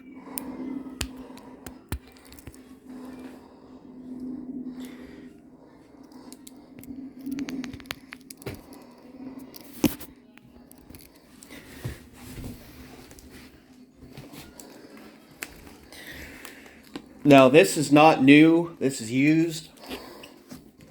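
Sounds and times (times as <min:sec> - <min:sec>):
scrapes and clicks: 0:06.0 - 0:11.5.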